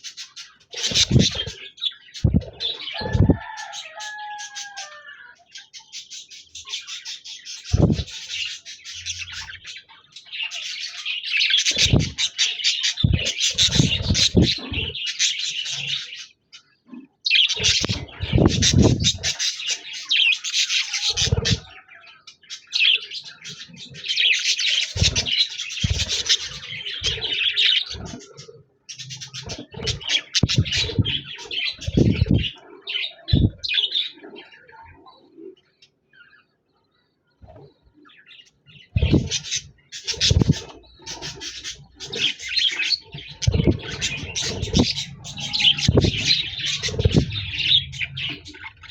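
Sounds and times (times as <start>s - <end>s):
budgerigars warbling: 0.0s - 35.0s, 37.4s - 48.9s
low thumps: 0.9s - 1.5s, 2.2s - 3.4s, 7.7s - 8.1s, 11.8s - 12.2s, 13.0s - 14.8s, 17.7s - 19.3s, 29.5s - 31.2s, 31.8s - 32.5s, 33.3s - 33.6s, 39.0s - 39.4s, 40.2s - 40.6s, 43.4s - 48.5s.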